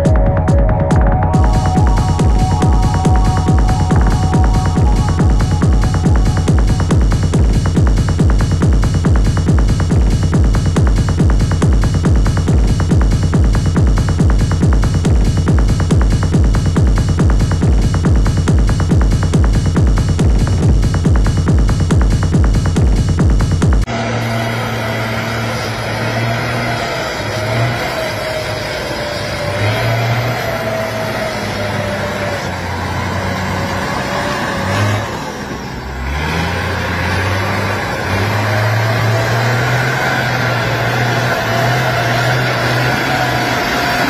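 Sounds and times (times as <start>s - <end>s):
wavering whine: 0.0s - 8.7s
electronic music: 0.0s - 27.8s
heavy truck engine under load: 0.0s - 44.0s.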